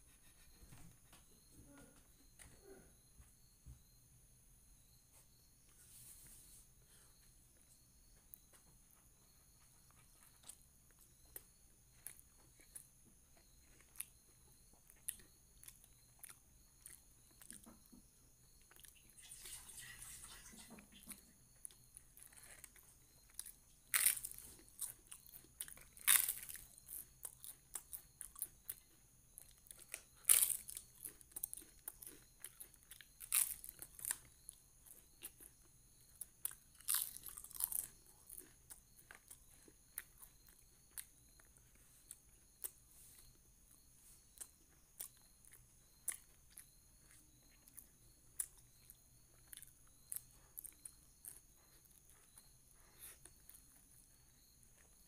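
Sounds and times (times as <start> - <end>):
chewing clicks: 9.9 - 17.9, 18.6 - 19.2, 21.6 - 55.0.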